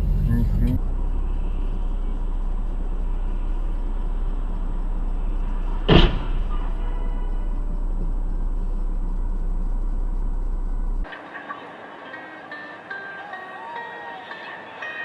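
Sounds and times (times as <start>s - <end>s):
car driving drone: 0.0s - 15.0s.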